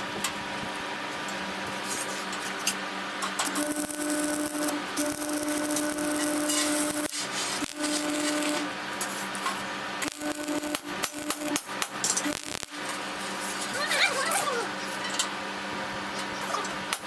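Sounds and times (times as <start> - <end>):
tool grinding on metal: 3.5 - 8.6.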